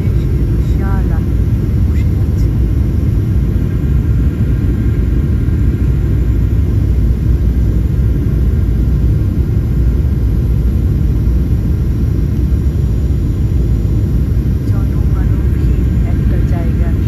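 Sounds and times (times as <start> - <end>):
aeroplane cabin engine drone: 0.0 - 17.0.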